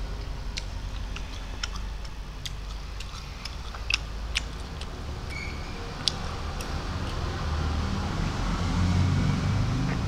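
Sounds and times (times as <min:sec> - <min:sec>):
steady low hum: 0:00.0 - 0:10.0
wet mouth clicks from chewing: 0:00.2 - 0:07.3.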